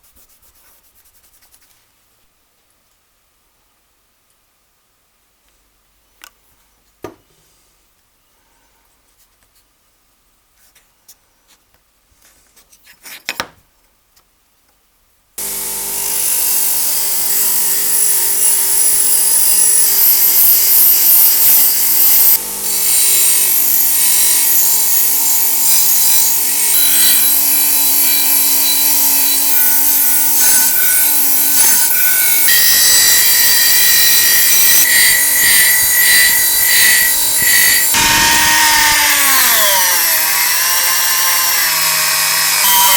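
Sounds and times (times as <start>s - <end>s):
belt sander grinding metal: 15.4s - 42.9s.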